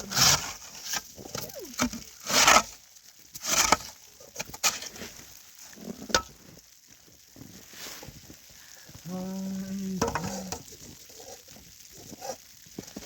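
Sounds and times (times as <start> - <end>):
pan scraping: 0.0 - 6.4, 10.0 - 12.4.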